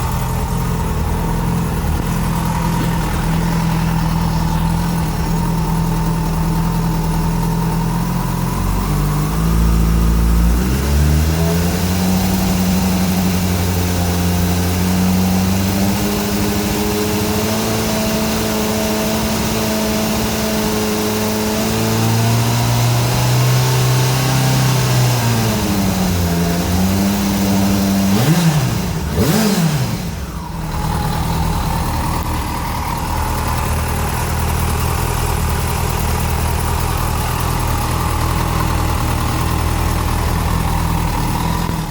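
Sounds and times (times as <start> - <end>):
motorcycle engine idling and revving: 0.0 - 41.9.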